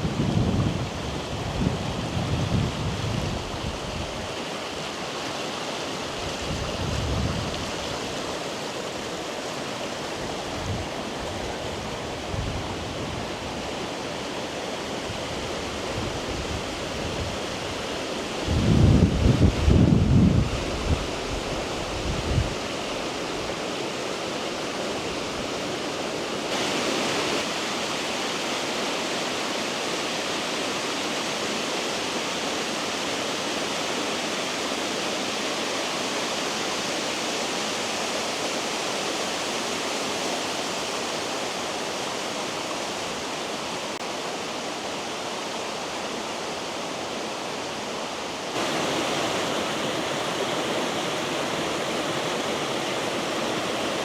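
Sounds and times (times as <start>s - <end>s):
waterfall rushing: 22.6s - 54.0s.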